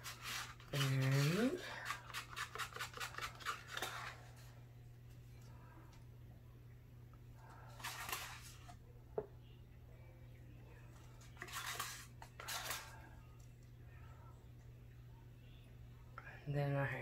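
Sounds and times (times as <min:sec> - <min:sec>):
faint steady low hum: 0:00.0 - 0:17.0
scraping and rustling: 0:10.9 - 0:13.0.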